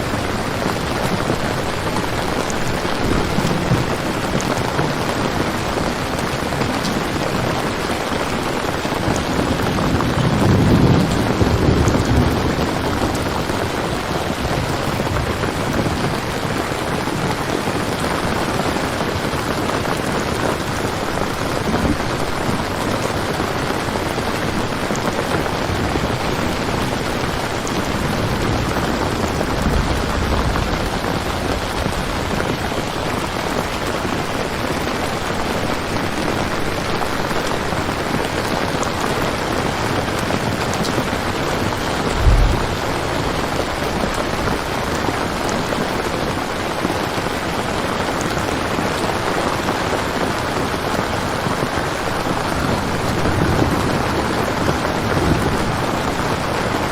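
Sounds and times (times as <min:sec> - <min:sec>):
distant thunder rumble: 0:00.0 - 0:16.4, 0:24.2 - 0:34.3, 0:39.9 - 0:46.0
heavy rain falling: 0:00.0 - 0:56.9.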